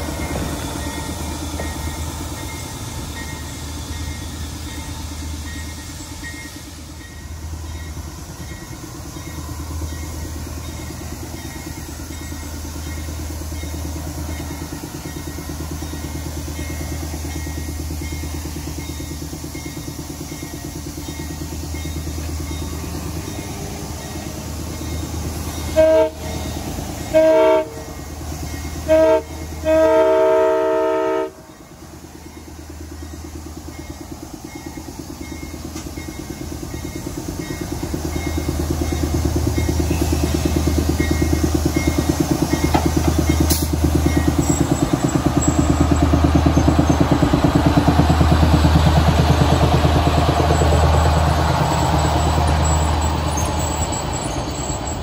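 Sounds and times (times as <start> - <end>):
diesel train rumble: 0.0 - 55.0
train air horn blasts: 25.7 - 26.5, 27.1 - 28.0, 28.8 - 31.5.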